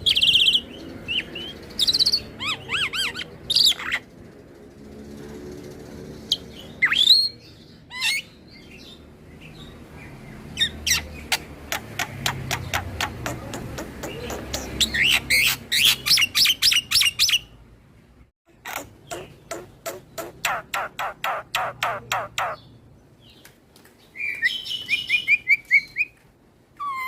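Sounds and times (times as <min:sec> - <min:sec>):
bird whistling and chattering: 0:00.0 - 0:04.0, 0:06.3 - 0:08.3, 0:10.6 - 0:17.4.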